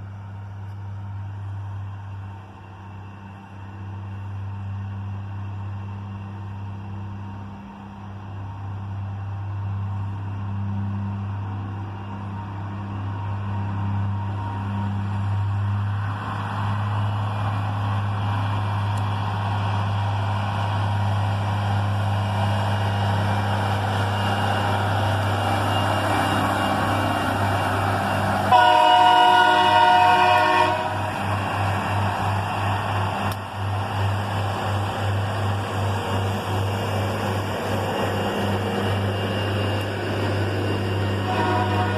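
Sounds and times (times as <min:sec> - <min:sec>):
diesel train engine running: 0:00.0 - 0:41.9
track rumble: 0:00.0 - 0:41.9
train air horn: 0:28.5 - 0:31.1, 0:41.2 - 0:41.9.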